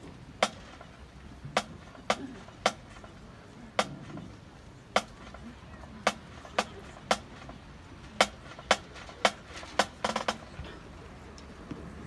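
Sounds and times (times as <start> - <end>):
wooden sticks clicking: 0.4 - 0.9, 1.6 - 3.1, 3.8 - 4.2, 5.0 - 5.4, 6.0 - 7.6, 8.2 - 10.5.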